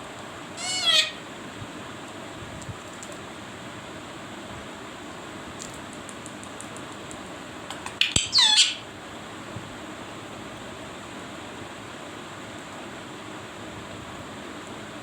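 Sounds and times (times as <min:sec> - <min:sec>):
parrot squawking: 0:00.6 - 0:01.3, 0:08.0 - 0:08.9.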